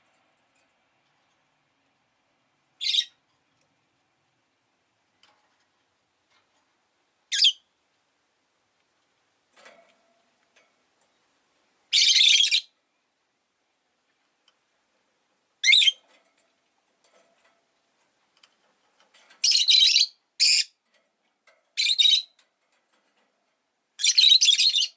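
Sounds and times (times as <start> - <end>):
lovebird chirping and calling: 2.8 - 3.2, 7.3 - 7.7, 11.9 - 12.7, 15.6 - 16.0, 19.4 - 20.8, 21.8 - 22.4, 24.0 - 24.9.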